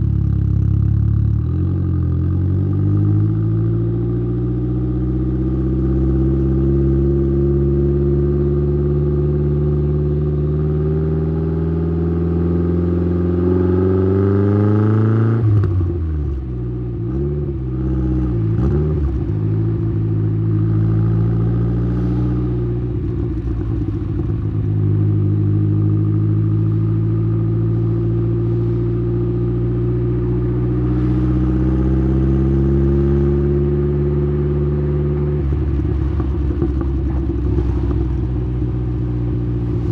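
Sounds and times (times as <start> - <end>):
turbocharged car engine revving: 17.8 - 39.9.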